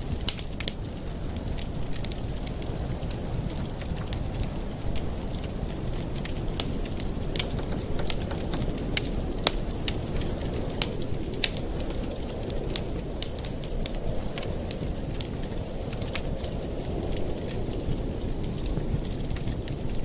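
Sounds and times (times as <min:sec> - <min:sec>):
campfire crackling and popping: 0:00.0 - 0:20.0
low rumble of fire: 0:00.0 - 0:20.0.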